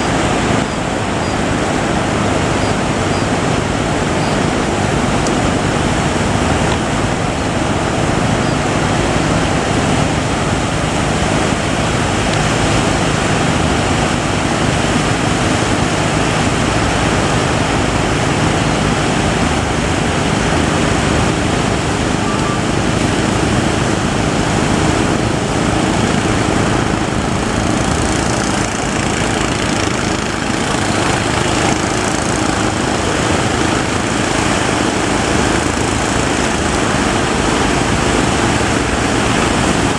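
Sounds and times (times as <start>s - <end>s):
boat engine running: 0.0s - 39.9s
surf rushing: 0.0s - 39.9s
wind: 0.0s - 39.9s.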